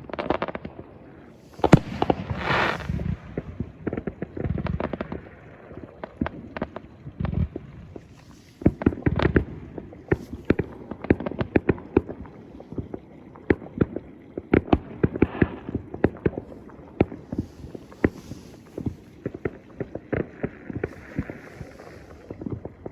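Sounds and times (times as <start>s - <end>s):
deep firework booms: 1.6s - 5.1s
fireworks bangs and crackling: 1.6s - 5.4s, 8.3s - 12.2s, 13.5s - 22.9s.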